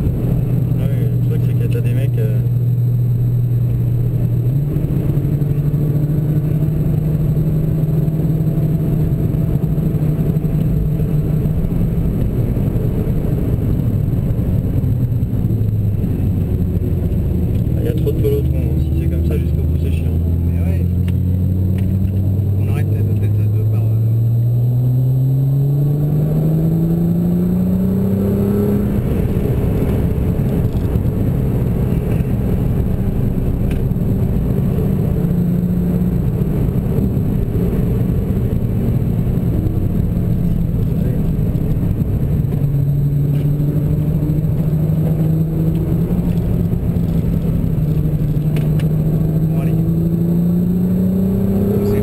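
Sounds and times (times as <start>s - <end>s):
car engine accelerating: 0.0s - 52.0s
road noise: 0.0s - 52.0s.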